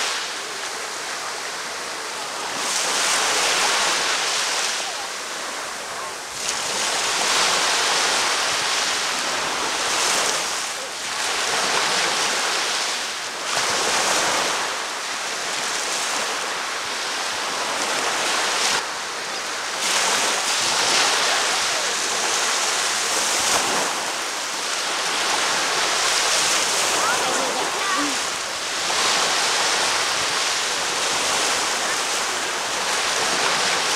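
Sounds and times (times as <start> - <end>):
surf breaking on a sandy beach: 0.0 - 33.9.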